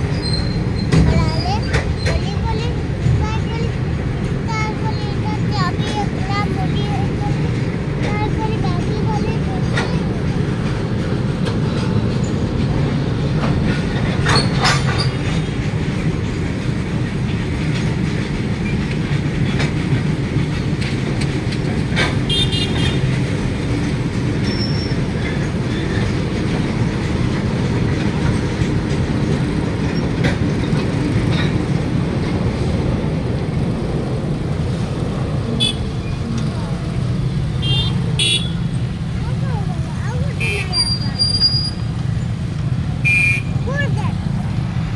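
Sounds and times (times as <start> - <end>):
wheel squeal: 0.0 - 2.2, 24.4 - 25.3, 40.6 - 42.0
train wheels rumbling on rail: 0.0 - 44.9.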